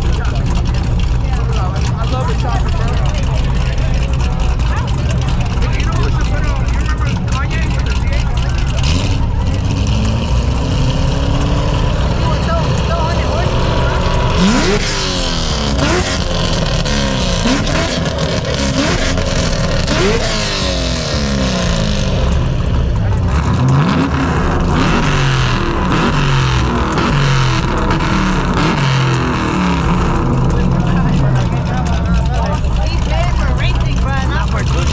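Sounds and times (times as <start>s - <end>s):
car engines revving hard: 0.0s - 34.9s
engine on launch limiter: 0.0s - 34.9s.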